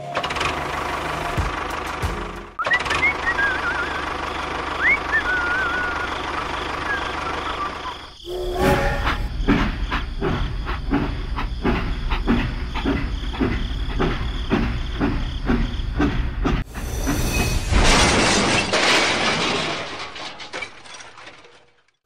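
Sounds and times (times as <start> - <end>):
whistle-like note: 2.6 - 4.1, 4.8 - 6.2
train wheels clickety-clack: 9.0 - 17.2.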